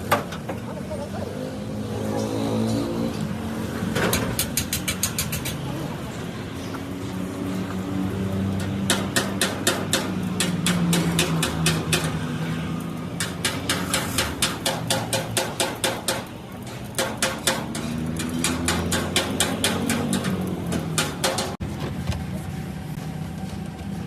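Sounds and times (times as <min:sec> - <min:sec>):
rapid hammer blows: 0:13.2 - 0:16.3.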